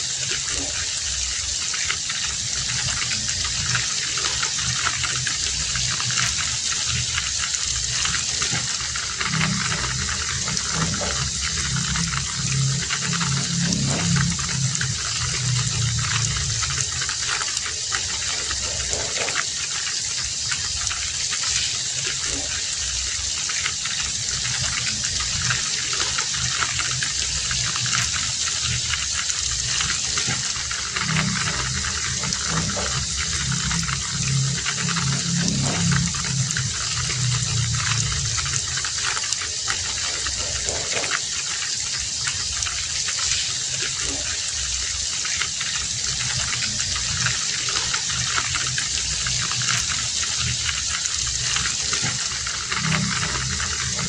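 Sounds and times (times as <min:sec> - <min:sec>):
heavy rain falling: 0:00.0 - 0:54.0
low rumbling sound: 0:02.3 - 0:19.2, 0:24.2 - 0:41.0.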